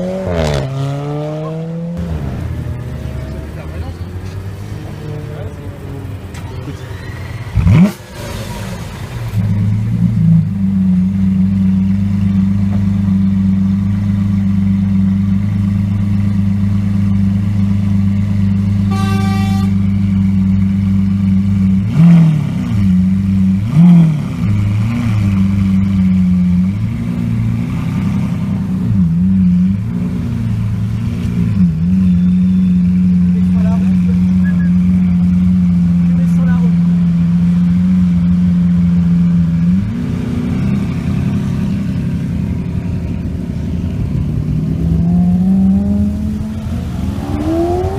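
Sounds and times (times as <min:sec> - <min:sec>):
sports car engine revving and idling: 0:00.0 - 0:47.9
engine blips: 0:00.2 - 0:47.9
short car horn toot: 0:18.9 - 0:19.9.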